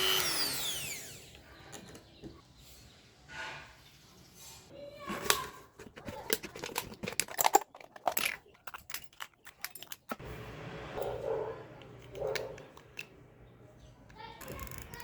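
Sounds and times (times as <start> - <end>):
aluminium can pieces crinkling: 5.1 - 10.2.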